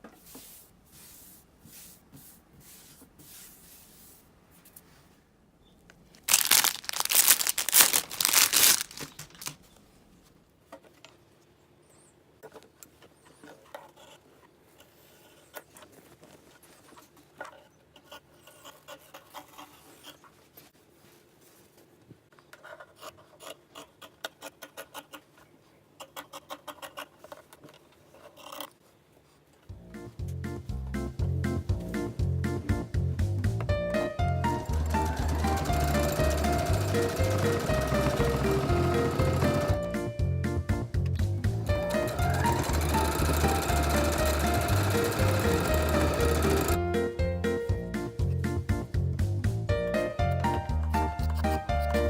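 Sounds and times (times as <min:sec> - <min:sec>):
fabric rustling and handling: 0:06.0 - 0:10.4, 0:20.4 - 0:22.3
fabric tearing: 0:06.2 - 0:09.6.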